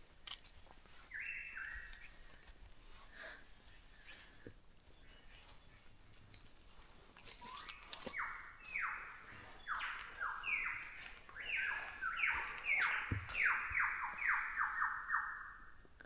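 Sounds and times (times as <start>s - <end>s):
bird calling harsh sliding notes: 7.4s - 15.6s.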